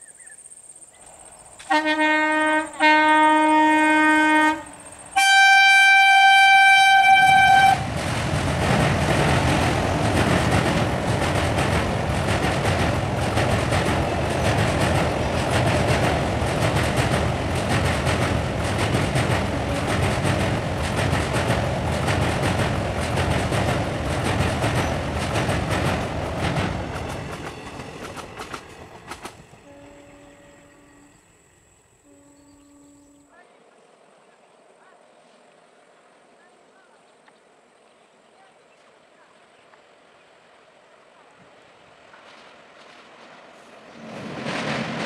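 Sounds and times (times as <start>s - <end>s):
locomotive horn blasts: 1.6s - 7.9s, 29.6s - 31.2s, 32.0s - 33.2s
train wheels rolling on rails: 4.8s - 31.4s, 41.4s - 45.0s.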